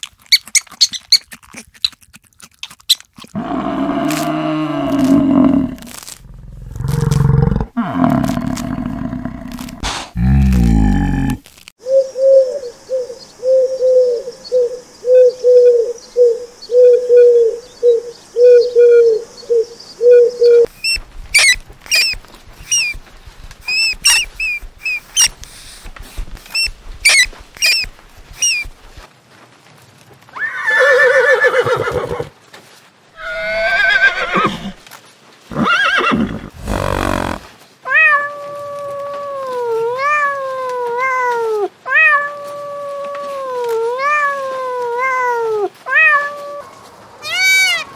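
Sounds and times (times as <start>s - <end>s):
low animal call: 3.4s - 11.4s, 35.5s - 47.9s
harsh animal calls: 33.2s - 34.8s, 35.5s - 37.5s
kittens meowing: 36.7s - 47.9s.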